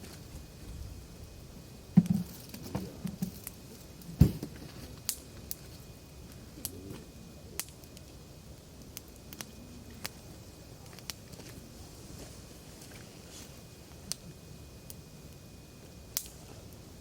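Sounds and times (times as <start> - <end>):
firewood crackling and popping: 0.0 - 17.0.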